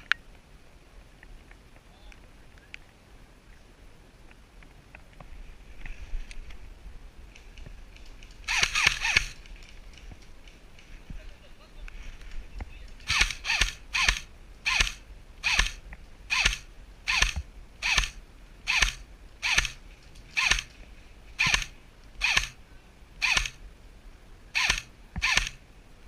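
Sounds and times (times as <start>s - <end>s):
airsoft gun single shots: 13.1s - 19.8s, 21.4s - 22.6s, 23.2s - 23.6s, 24.6s - 25.6s.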